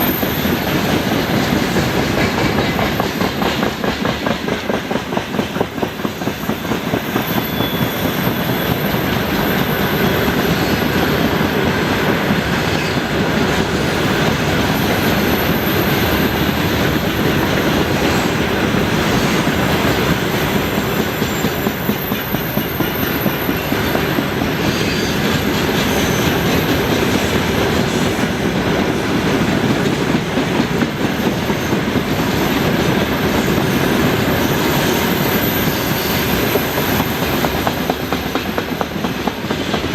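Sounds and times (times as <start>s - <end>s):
train rail rumble: 0.0s - 39.9s
faint wheel squeal: 7.1s - 11.2s, 21.0s - 26.5s.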